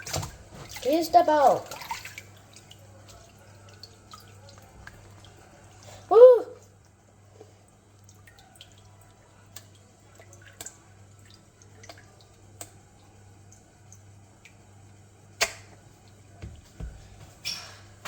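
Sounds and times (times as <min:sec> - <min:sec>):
low steady hum: 0:00.0 - 0:18.0
small clicks and drips: 0:01.6 - 0:06.0, 0:06.6 - 0:16.3.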